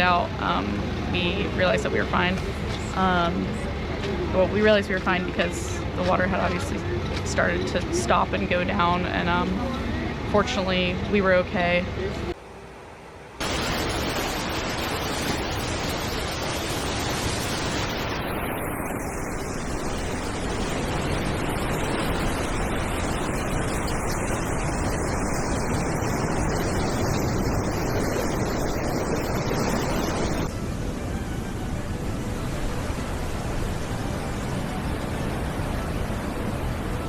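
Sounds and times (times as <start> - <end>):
floodwater rushing in river: 13.4 - 37.0.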